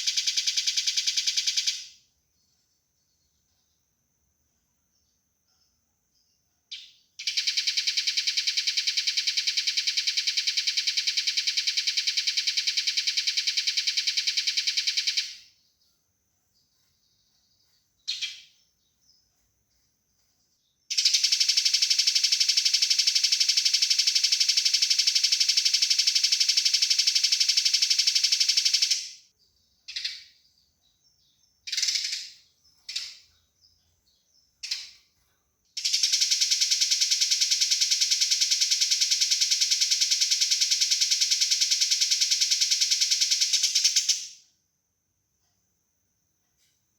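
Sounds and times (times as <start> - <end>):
sparrow short chirps: 17.3 - 19.2, 31.2 - 33.3
sparrows rattling chatter: 20.9 - 35.1.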